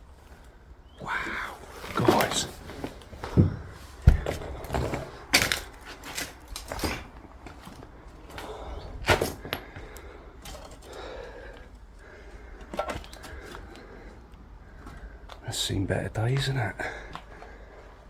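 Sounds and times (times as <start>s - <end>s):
low scuffing and rustling: 1.9s - 10.8s
sharp knocks and cracks: 3.2s - 11.6s.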